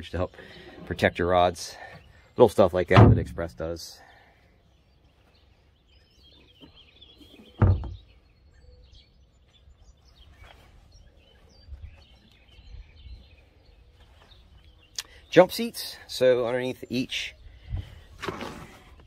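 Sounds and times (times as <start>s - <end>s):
small birds chirping: 0.0s - 19.0s
dull thump: 2.9s - 3.6s, 7.6s - 8.1s.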